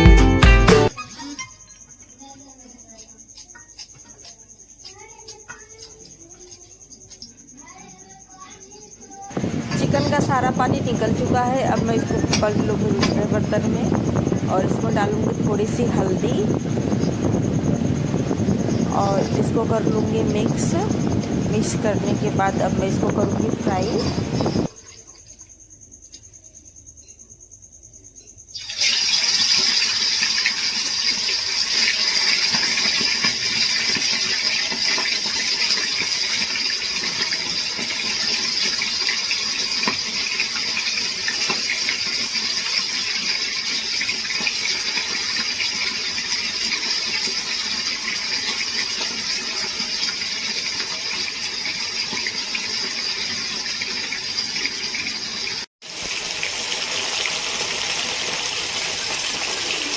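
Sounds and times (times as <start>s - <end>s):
chicken sizzling in hot oil: 9.3s - 24.8s, 28.5s - 59.9s.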